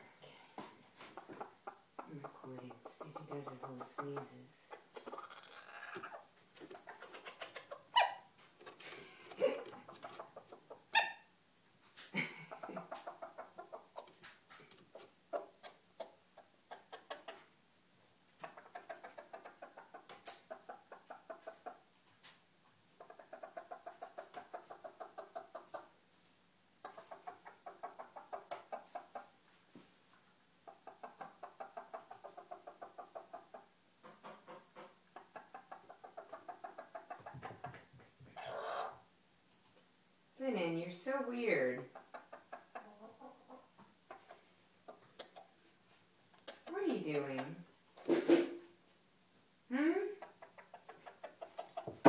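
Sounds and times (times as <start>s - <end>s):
chicken clucking rapidly: 1.0s - 11.3s, 12.0s - 17.6s, 18.2s - 22.3s, 22.9s - 26.0s, 26.7s - 29.4s, 30.6s - 39.1s, 41.6s - 48.6s, 50.1s - 52.0s.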